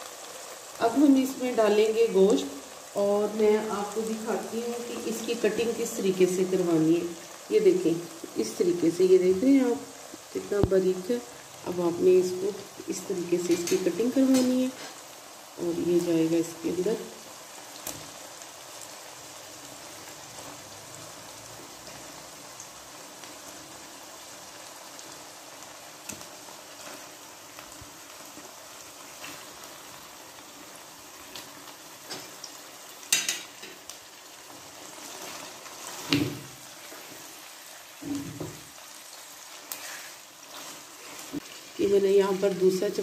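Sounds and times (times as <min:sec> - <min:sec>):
meat sizzling in hot oil: 0:00.0 - 0:43.0
knocks and clatters in pan: 0:33.1 - 0:33.8.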